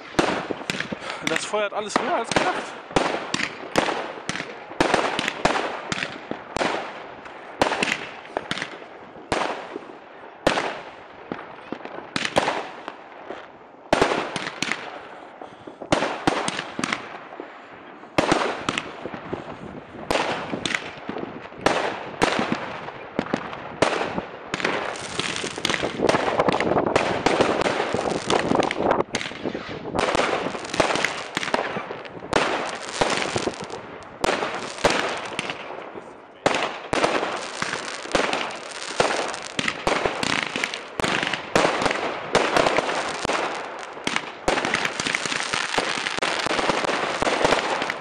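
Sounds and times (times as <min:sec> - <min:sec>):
fireworks bangs and crackle: 0:00.0 - 0:48.0.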